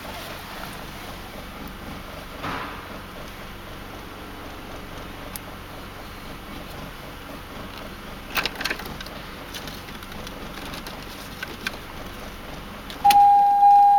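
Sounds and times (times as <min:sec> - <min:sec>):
engine idling: 0:00.0 - 0:13.9.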